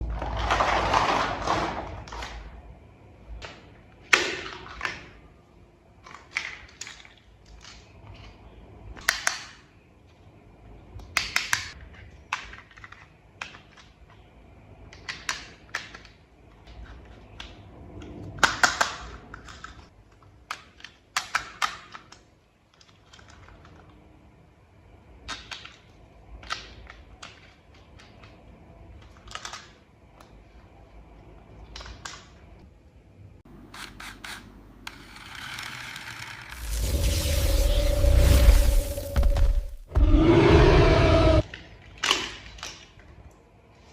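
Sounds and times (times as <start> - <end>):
sharp plastic snaps: 18.4 - 23.3
plastic toy parts clicking and scraping: 25.3 - 29.8, 33.7 - 36.7.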